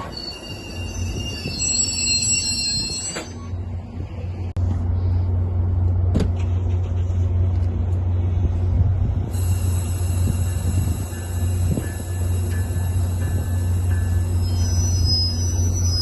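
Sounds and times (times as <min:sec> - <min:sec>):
train wheel and brake squeal: 0:00.0 - 0:03.7, 0:09.3 - 0:16.0
train low rumble: 0:00.0 - 0:16.0.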